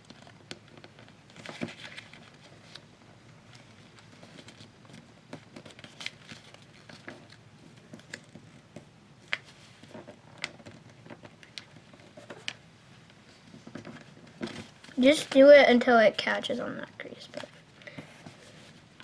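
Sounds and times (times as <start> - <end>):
paper being folded and creased: 0.1 - 8.6.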